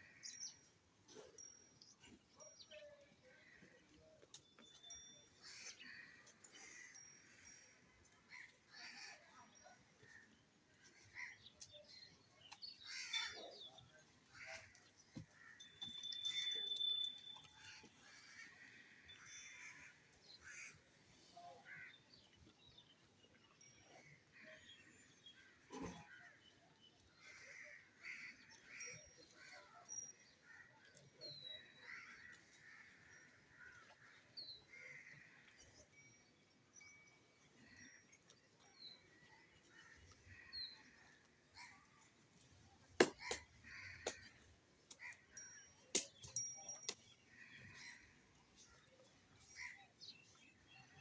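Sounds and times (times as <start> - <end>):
birds calling: 11.0 - 20.9.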